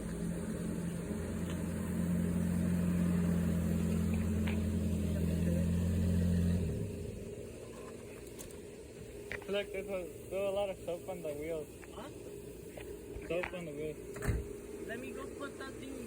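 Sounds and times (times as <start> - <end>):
low motor drone: 0.0 - 7.7.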